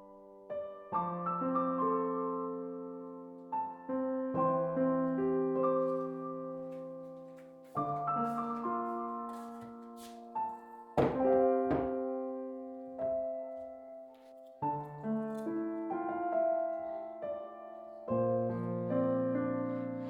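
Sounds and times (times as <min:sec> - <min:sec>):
soft piano chords: 0:00.0 - 0:20.0.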